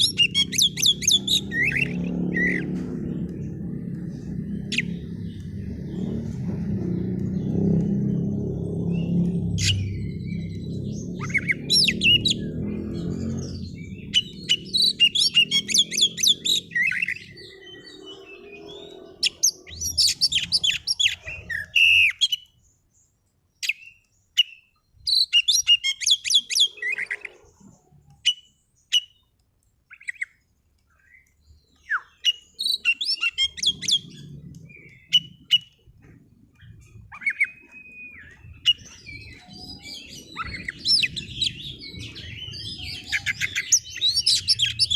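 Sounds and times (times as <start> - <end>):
bird chirping and whistling: 0.0 - 2.7, 8.8 - 22.5, 23.6 - 27.4, 28.2 - 29.2, 29.9 - 30.4, 31.8 - 35.8, 36.6 - 44.9.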